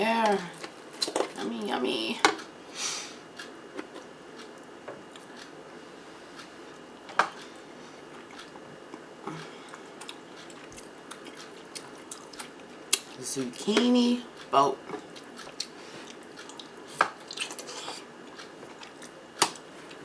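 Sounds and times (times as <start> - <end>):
wet chewing sounds: 7.3 - 13.2, 15.0 - 20.0.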